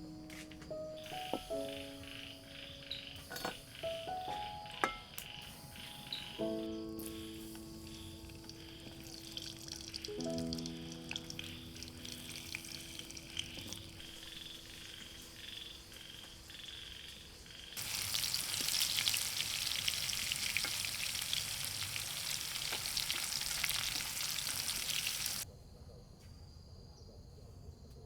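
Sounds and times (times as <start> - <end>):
frogs croaking: 0.3 - 25.4
food frying in hot oil: 7.9 - 14.2, 17.3 - 25.4.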